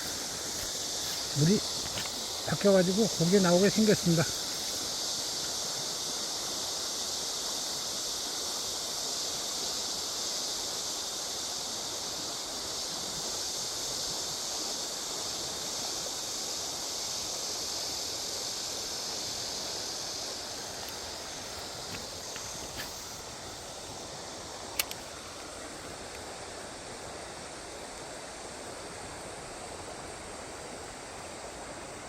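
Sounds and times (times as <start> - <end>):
river rushing: 0.0 - 6.2
high-pitched insect chorus: 0.0 - 32.0
faint clicks: 24.7 - 25.1.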